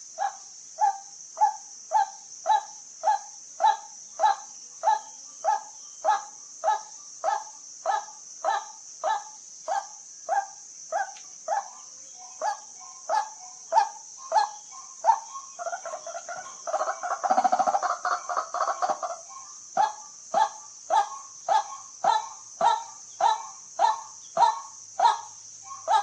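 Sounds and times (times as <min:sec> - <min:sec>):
high insect buzz: 0:00.0 - 0:26.0
waterhen calling: 0:11.5 - 0:26.0.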